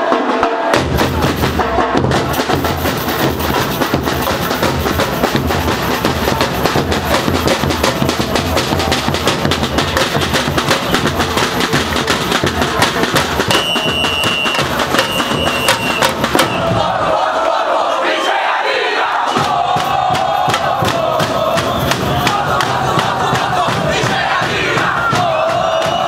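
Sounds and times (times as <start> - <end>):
samba drum ensemble playing: 0.0 - 17.4, 19.2 - 26.0
pulsing bass drum beat: 0.8 - 17.1, 19.4 - 26.0.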